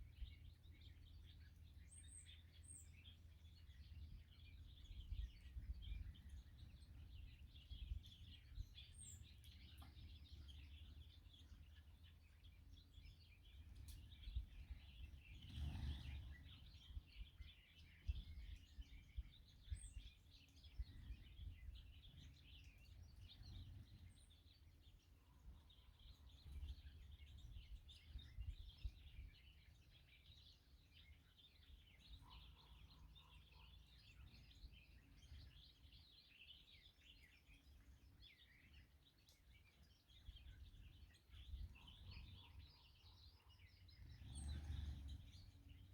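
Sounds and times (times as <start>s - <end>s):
low steady rumble: 0.0s - 32.1s, 43.6s - 45.9s
small birds chirping: 0.0s - 45.9s.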